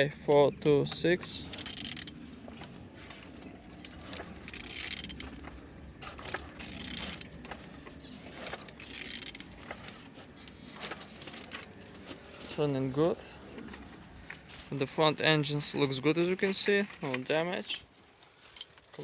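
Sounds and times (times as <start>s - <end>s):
engine internals turning: 0.0s - 19.0s
ratcheting clicks: 0.9s - 2.8s, 3.7s - 5.6s, 6.2s - 7.7s, 8.3s - 9.8s.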